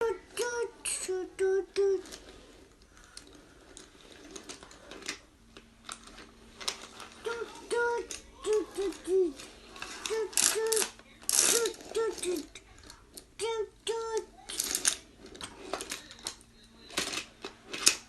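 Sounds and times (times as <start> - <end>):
faint steady hum: 0.0 - 18.0
toy moving parts clicking: 7.3 - 18.0
toy train tooting: 10.0 - 12.4.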